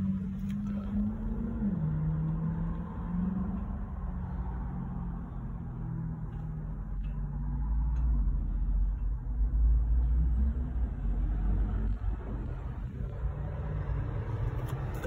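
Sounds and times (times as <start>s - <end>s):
car engine idling in cabin: 0.0s - 15.0s.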